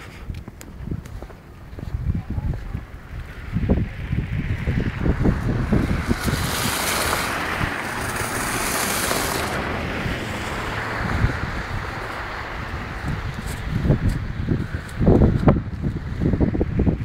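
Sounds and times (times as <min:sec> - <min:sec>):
wind buffeting microphone: 0:00.0 - 0:17.0
rushing hiss: 0:05.8 - 0:09.7.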